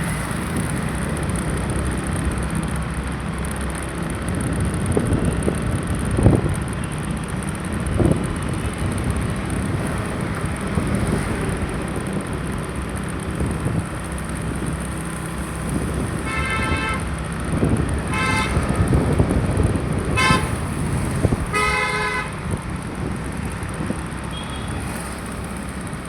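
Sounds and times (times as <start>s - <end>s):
road traffic rumble: 0.0s - 26.0s
vehicle horns honking: 16.2s - 17.2s, 18.0s - 19.1s, 20.0s - 22.6s, 24.3s - 24.9s.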